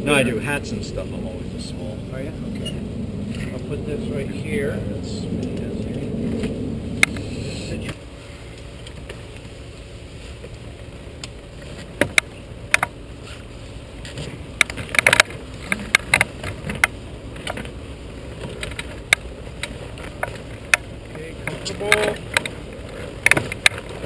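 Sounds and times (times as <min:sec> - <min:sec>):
steady low background noise: 0:00.0 - 0:24.0
gear clicking and knocking: 0:14.0 - 0:17.7, 0:18.4 - 0:24.0.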